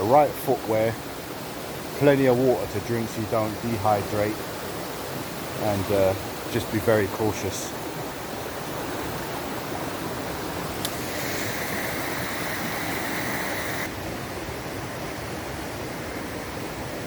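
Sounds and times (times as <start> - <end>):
waterfall rushing: 0.0 - 17.0
high steady buzz: 10.7 - 13.9.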